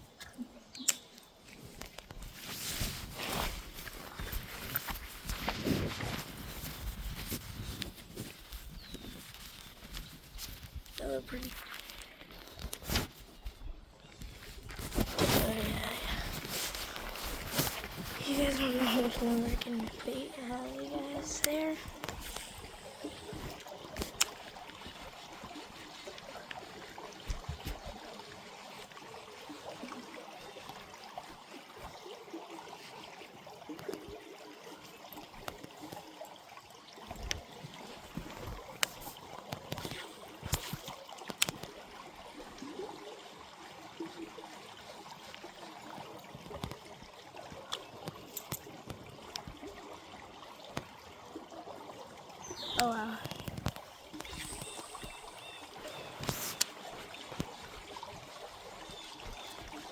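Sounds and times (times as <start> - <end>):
creek water trickling: 0.0 - 59.9.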